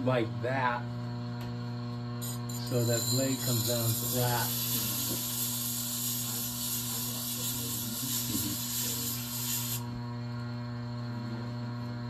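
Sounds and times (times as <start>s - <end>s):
grinder motor hum: 0.0s - 12.0s
steel grinding on wet stone: 2.2s - 9.8s.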